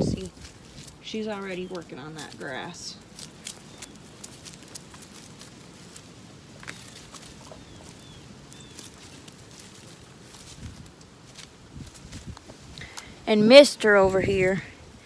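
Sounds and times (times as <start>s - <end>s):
goat tearing grass: 0.0s - 13.2s
faint bird chirps: 6.6s - 9.1s.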